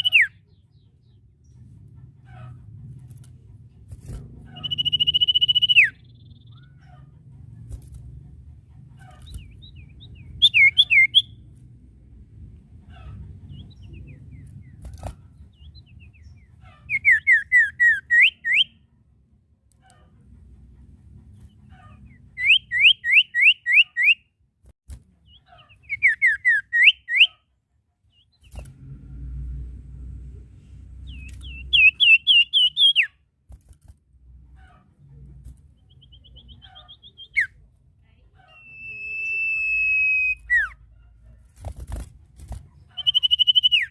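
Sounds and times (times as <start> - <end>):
bird trilling: 0.0 - 0.4, 4.4 - 7.0, 9.0 - 11.4, 15.6 - 18.8, 31.0 - 33.2, 38.4 - 40.8, 42.9 - 43.9
songbird whistling: 0.0 - 0.4, 4.6 - 6.6, 9.4 - 11.4, 16.9 - 18.8, 22.4 - 24.2, 25.8 - 27.4, 31.0 - 33.2, 35.9 - 37.6, 38.6 - 40.8, 43.0 - 43.9
soft bird chirps: 4.4 - 7.0, 30.5 - 33.2, 34.5 - 40.8, 42.6 - 43.9.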